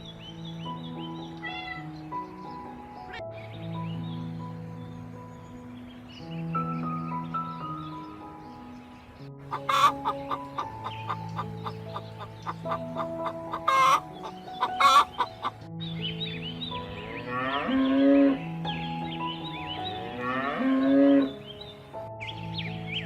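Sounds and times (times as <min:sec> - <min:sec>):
gentle background music: 0:00.0 - 0:23.0
chickens clucking: 0:09.4 - 0:15.6
chicken squawks: 0:09.5 - 0:15.5.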